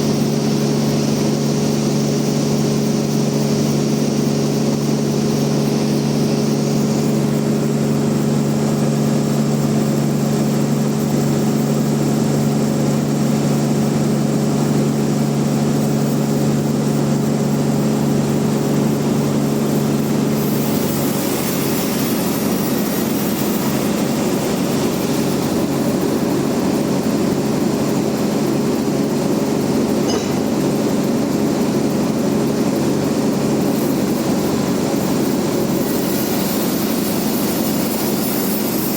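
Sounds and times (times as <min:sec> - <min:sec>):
bandsaw mill humming: 0:30.1 - 0:32.1.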